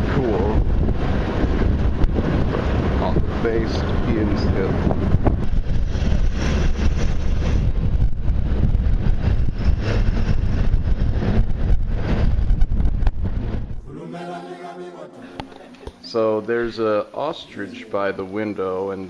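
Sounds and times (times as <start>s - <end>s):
wind buffeting microphone: 0.0s - 13.8s.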